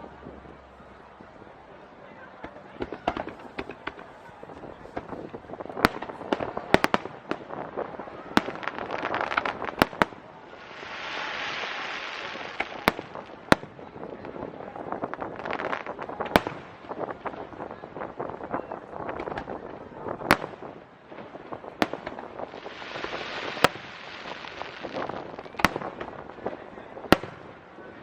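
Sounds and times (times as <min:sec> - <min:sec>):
fireworks bursting: 0:02.4 - 0:28.0
fireworks crackling: 0:02.4 - 0:28.0
steady hiss: 0:04.8 - 0:13.5, 0:20.6 - 0:26.6.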